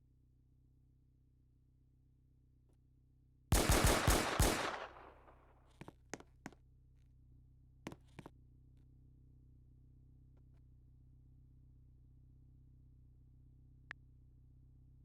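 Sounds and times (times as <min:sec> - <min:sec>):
loud bangs: 0:03.5 - 0:05.3.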